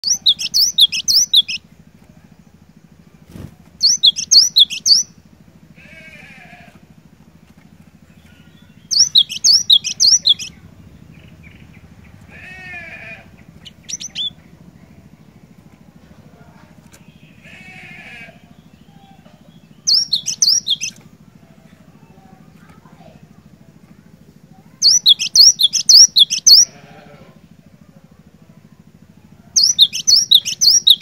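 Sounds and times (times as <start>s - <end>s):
bird singing sharp high notes: 0.0s - 1.6s, 3.8s - 5.2s, 8.5s - 10.6s, 13.6s - 14.4s, 19.8s - 21.0s, 24.8s - 26.8s, 29.6s - 31.0s
soft warbled bird phrases: 0.0s - 31.0s
steady low hum: 0.0s - 31.0s.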